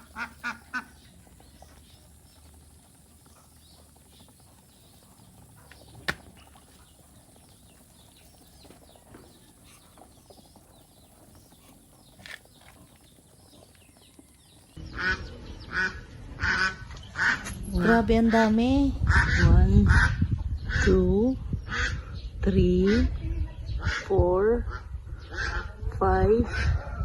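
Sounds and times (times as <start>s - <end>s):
poultry honking: 0.0s - 2.6s, 14.8s - 17.5s
fowl chirping: 0.0s - 17.5s.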